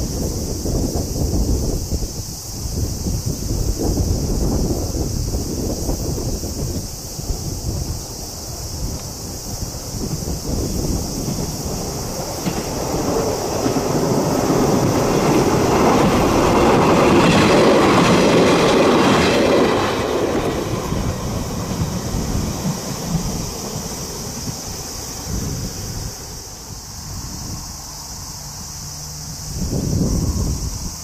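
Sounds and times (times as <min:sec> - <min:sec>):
train wheels clattering on bridge: 0:08.0 - 0:25.8.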